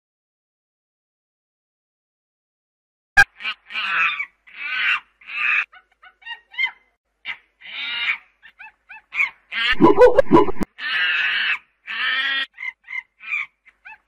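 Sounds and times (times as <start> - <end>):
monkey screeching: 6.3 - 14.0
monkey chirping: 8.5 - 10.6.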